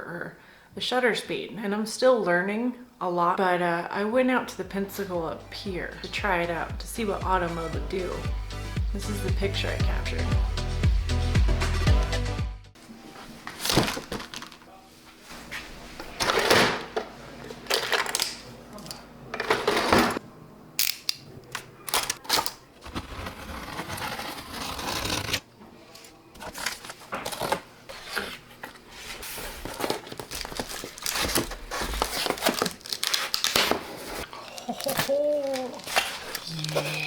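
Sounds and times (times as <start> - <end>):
package being handled and opened: 26.4 - 37.0.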